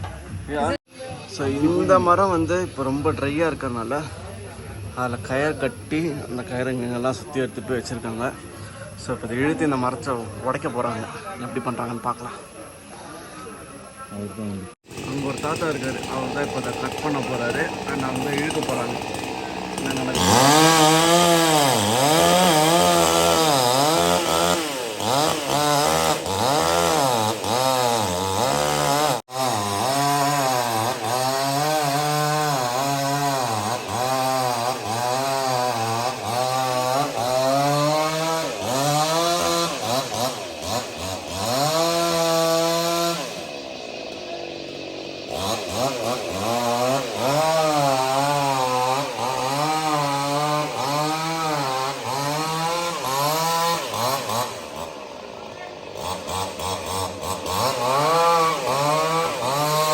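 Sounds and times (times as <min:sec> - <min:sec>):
chainsaw cutting into tree trunk: 0:14.8 - 0:59.9.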